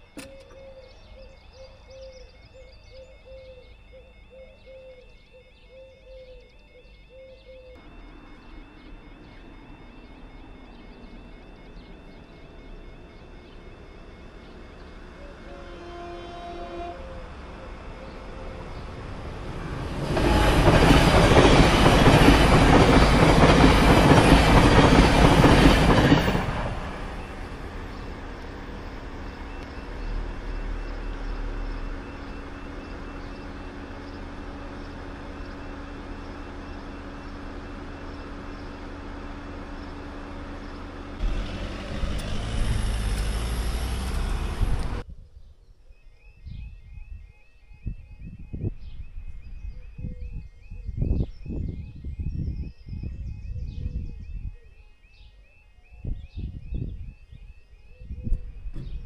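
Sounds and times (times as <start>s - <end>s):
train wheels rushing on rails: 17.3s - 45.0s
car driving over crossing: 37.3s - 45.0s.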